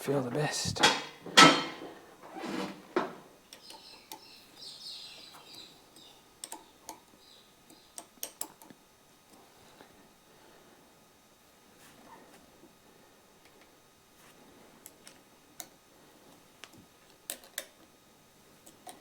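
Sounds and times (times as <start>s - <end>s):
parts clicking and tapping: 6.0s - 7.0s.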